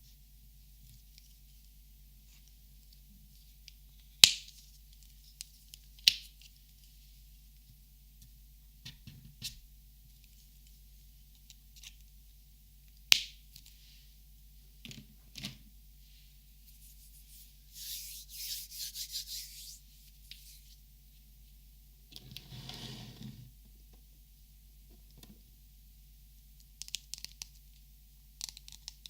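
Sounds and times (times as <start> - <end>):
scratchy rubbing: 16.7 - 20.7.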